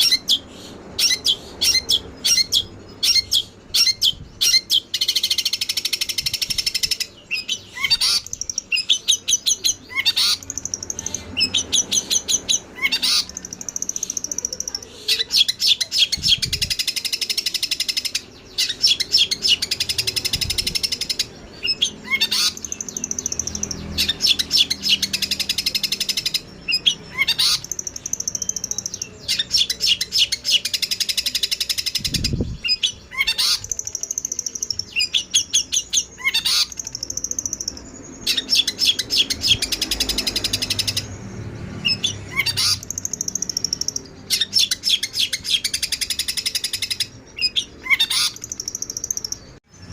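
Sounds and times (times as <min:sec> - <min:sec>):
sparrows chirping agitatedly: 0:00.0 - 0:49.9.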